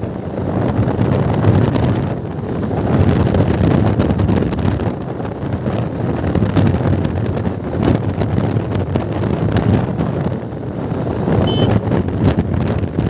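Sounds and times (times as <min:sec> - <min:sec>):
wind buffeting microphone: 0:00.0 - 0:13.0
motorcycle engine drone: 0:11.5 - 0:11.8.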